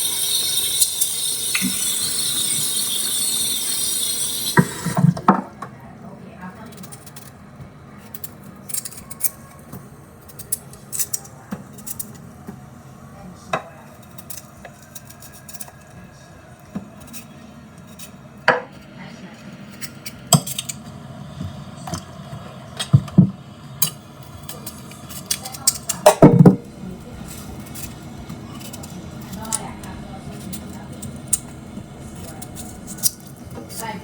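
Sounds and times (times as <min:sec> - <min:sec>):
kitchen utensils clattering: 0:00.0 - 0:05.6, 0:22.8 - 0:34.0.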